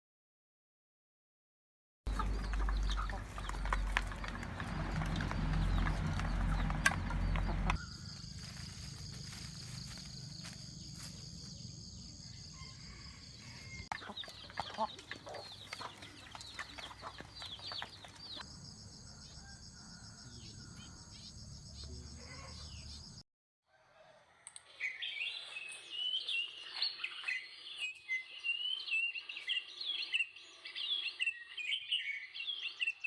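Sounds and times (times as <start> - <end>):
chickens clucking: 2.1 - 7.8, 12.9 - 18.4.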